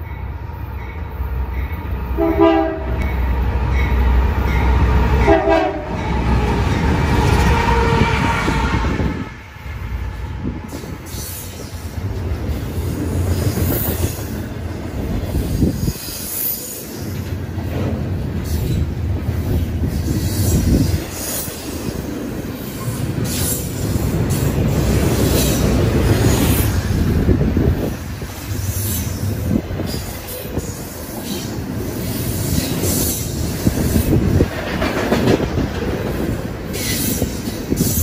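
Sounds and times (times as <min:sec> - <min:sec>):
train cars rumbling on rails: 0:00.0 - 0:38.0
locomotive horn: 0:02.2 - 0:03.0, 0:05.2 - 0:06.5, 0:07.2 - 0:09.4.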